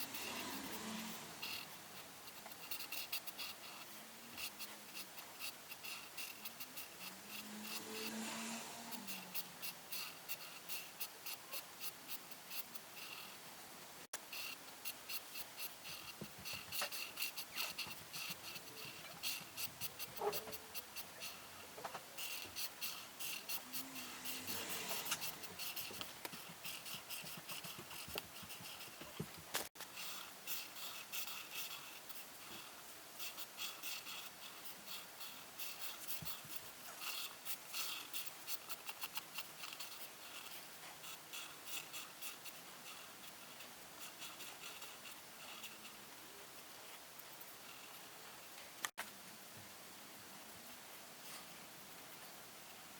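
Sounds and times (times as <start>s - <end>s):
colouring tool scratching paper: 0.0s - 13.4s, 14.2s - 48.1s.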